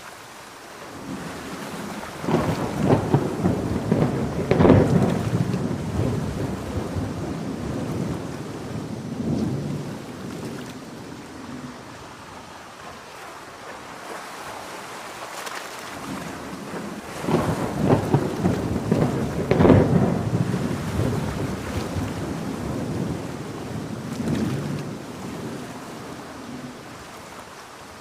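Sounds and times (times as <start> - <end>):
heavy rain: 0.0 - 28.0
rolling thunder: 1.0 - 12.1, 16.1 - 26.8.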